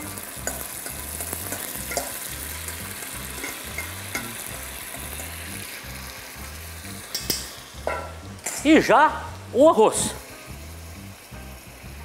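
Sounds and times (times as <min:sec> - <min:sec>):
chicken sizzling in oil: 0:00.0 - 0:12.0
metal spoon clicking on pot: 0:00.4 - 0:04.4.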